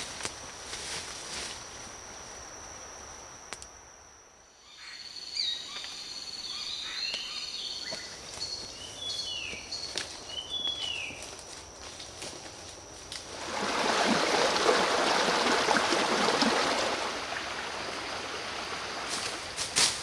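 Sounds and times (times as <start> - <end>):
high insect drone: 0.0 - 20.0
birds chirping and whistling: 4.8 - 11.2.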